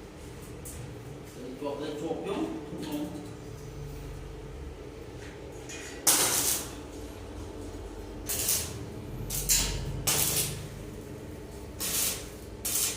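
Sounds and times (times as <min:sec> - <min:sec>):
welding arc crackling: 0:06.0 - 0:12.9.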